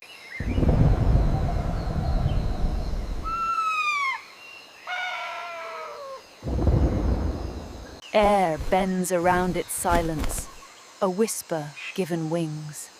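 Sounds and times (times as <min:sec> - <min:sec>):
low rumbling: 0:00.4 - 0:03.5, 0:06.4 - 0:08.8
descending animal calls: 0:03.2 - 0:06.2.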